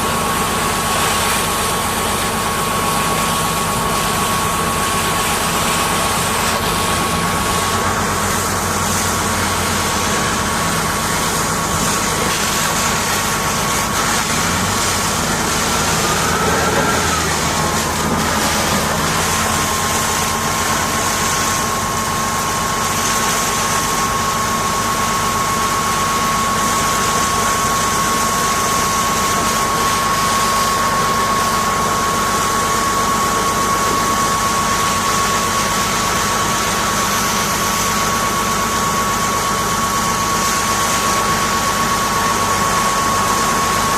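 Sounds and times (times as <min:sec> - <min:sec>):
engine-driven machinery running: 0:00.0 - 0:43.9
steady high whine: 0:00.0 - 0:43.9.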